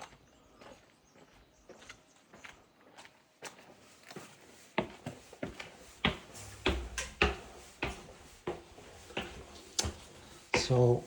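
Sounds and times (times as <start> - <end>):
footsteps walking indoors: 0.0 - 11.0
heavy thuds: 5.5 - 10.7.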